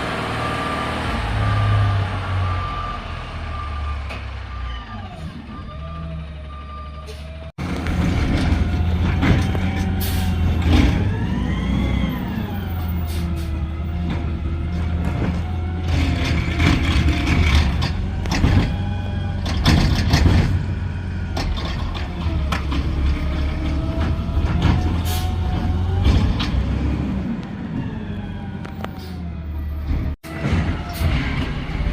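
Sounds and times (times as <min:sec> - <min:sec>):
garbage truck engine rumble: 0:00.0 - 0:31.9
clanks and knocks: 0:19.4 - 0:20.6.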